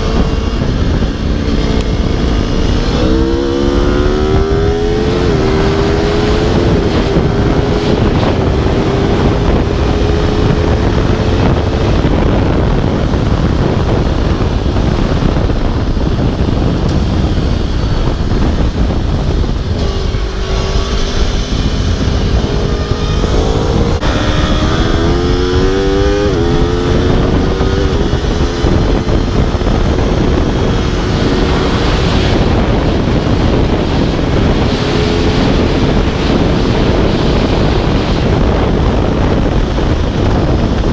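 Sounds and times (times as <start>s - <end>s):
motorcycle engine revving: 0.0s - 40.9s
wind rush over microphone: 0.0s - 40.9s.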